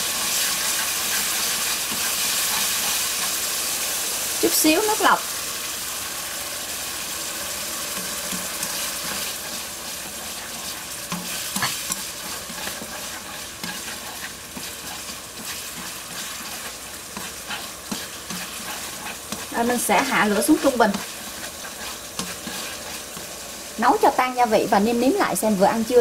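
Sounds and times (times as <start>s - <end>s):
utensils scraping and tapping wok: 0.0s - 4.0s, 7.5s - 23.7s
sauce sizzling and bubbling: 0.0s - 26.0s.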